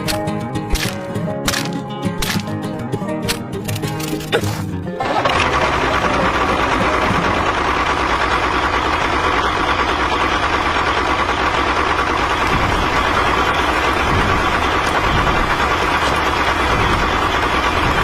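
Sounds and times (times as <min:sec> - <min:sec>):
small motor running: 0:05.2 - 0:18.0.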